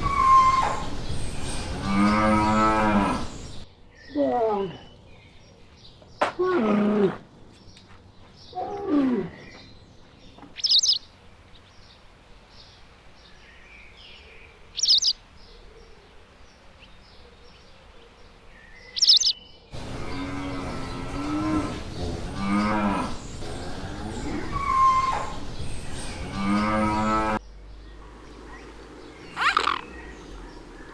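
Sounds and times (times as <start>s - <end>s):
faint bird chirping: 7.6s - 26.6s, 27.4s - 30.9s
bird sharp high call: 19.0s - 19.4s.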